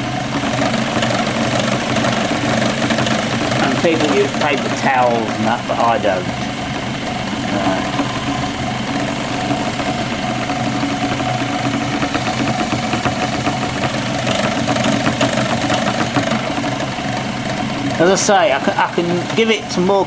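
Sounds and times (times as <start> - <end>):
lathe motor humming: 0.0 - 20.0.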